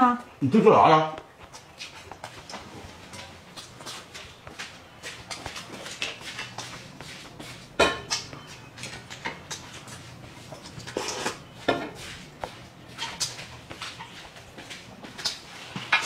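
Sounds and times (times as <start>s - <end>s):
dishes and utensils clinking: 7.7s - 12.2s, 12.9s - 14.2s, 15.1s - 16.0s.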